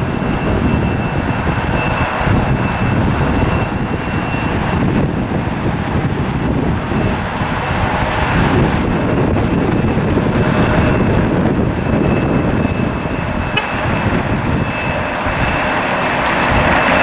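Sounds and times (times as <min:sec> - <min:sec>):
jet engine rumble and whine: 0:00.0 - 0:17.0
wind buffeting microphone: 0:00.0 - 0:17.0.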